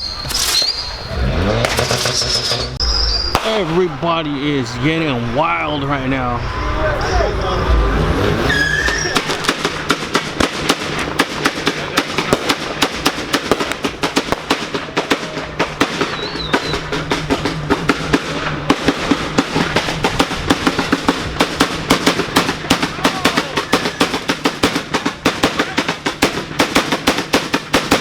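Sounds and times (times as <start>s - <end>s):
firecrackers cracking and popping: 0.0s - 3.8s, 8.6s - 28.0s.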